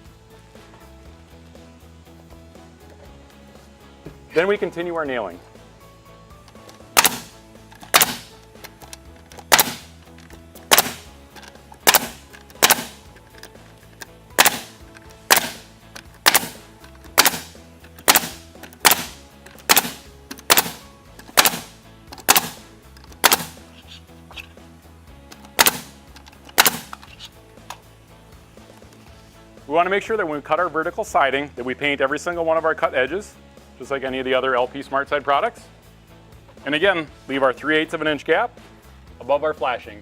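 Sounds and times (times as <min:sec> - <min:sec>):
background music: 0:00.0 - 0:40.0
nail gun shots: 0:06.9 - 0:08.4, 0:09.4 - 0:10.0, 0:10.6 - 0:11.2, 0:11.8 - 0:13.1, 0:14.4 - 0:23.8, 0:25.5 - 0:27.2.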